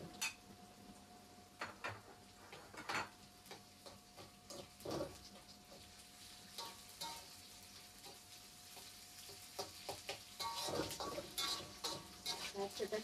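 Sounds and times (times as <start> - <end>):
food frying in hot oil: 0.0 - 13.0
spatula scraping pan: 8.0 - 13.0.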